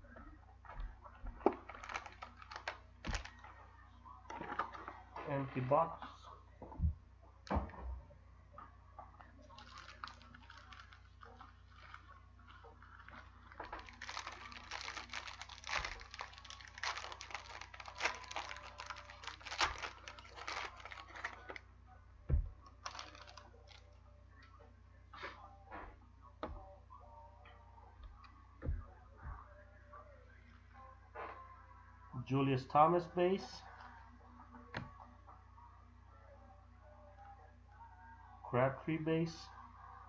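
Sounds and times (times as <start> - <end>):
plastic wrapper crinkling: 1.5 - 3.5, 9.4 - 21.6, 22.7 - 24.0.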